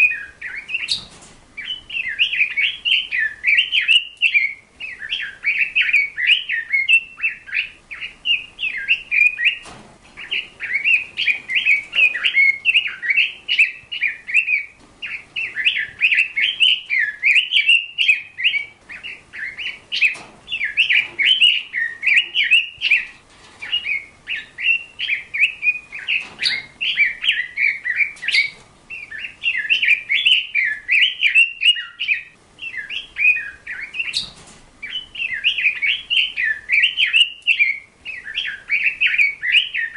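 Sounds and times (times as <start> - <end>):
small bird chirping and warbling: 0.0 - 39.9.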